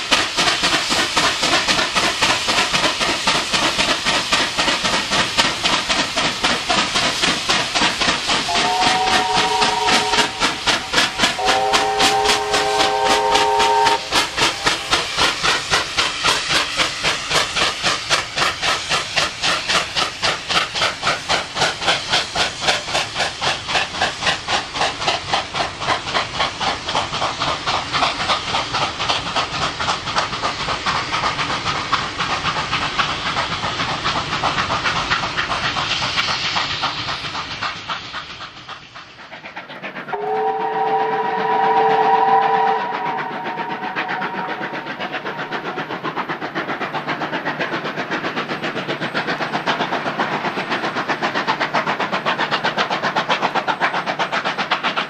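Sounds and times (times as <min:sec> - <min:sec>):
steam locomotive exhaust beating: 0:00.0 - 0:55.0
steam chime whistle: 0:08.5 - 0:15.4, 0:40.1 - 0:45.8.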